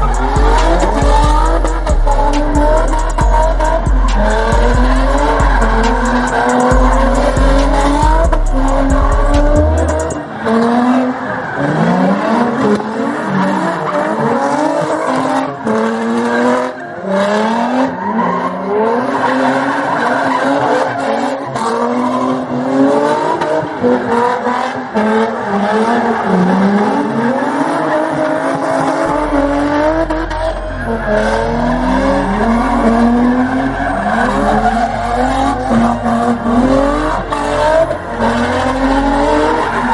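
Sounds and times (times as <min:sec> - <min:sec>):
deep music bass thumping: 0:00.0 - 0:10.3
car engine revving: 0:00.0 - 0:39.9
tires squealing: 0:00.0 - 0:39.9.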